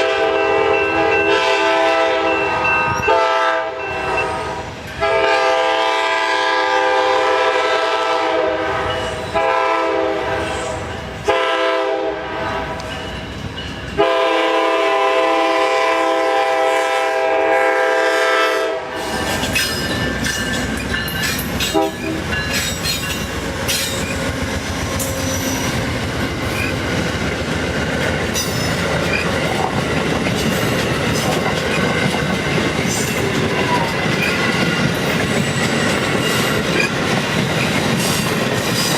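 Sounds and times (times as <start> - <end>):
train horn blasts: 0.0 - 12.9, 14.0 - 19.3, 21.7 - 22.2
train rolling past: 0.0 - 38.9
wheels clacking over rail joints: 19.0 - 38.9
wheel squeal: 26.6 - 26.8.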